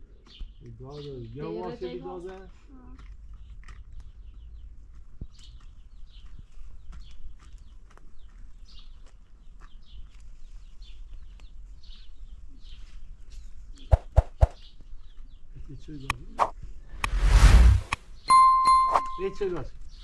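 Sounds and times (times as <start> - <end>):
small birds chirping: 0.0 - 17.1, 18.0 - 20.0.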